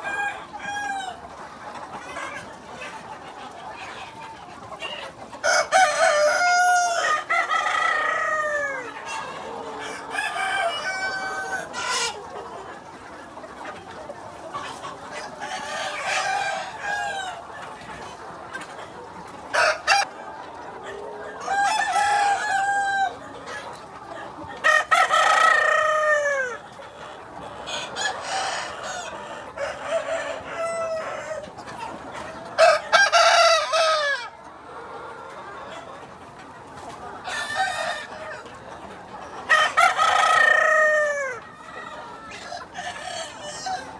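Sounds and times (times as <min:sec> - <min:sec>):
roosters crowing: 0:00.0 - 0:01.2, 0:05.4 - 0:12.2, 0:15.4 - 0:17.4, 0:19.5 - 0:20.1, 0:21.4 - 0:23.3, 0:24.6 - 0:26.6, 0:27.7 - 0:31.4, 0:32.6 - 0:34.3, 0:39.5 - 0:41.4
hens clucking: 0:00.0 - 0:43.9.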